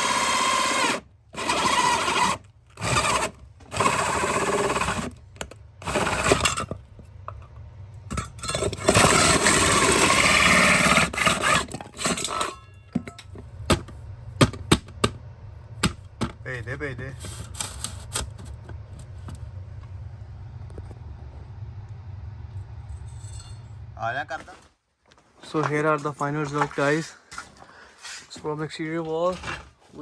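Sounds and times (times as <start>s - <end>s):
hammer drill boring through brick: 0.0s - 6.8s, 8.1s - 12.7s.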